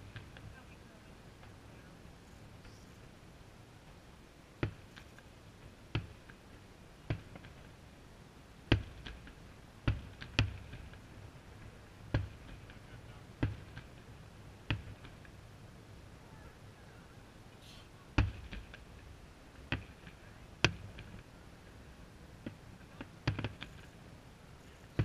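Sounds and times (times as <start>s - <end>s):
distant firework shells bursting: 8.7s - 15.4s, 18.1s - 21.4s, 22.4s - 24.0s.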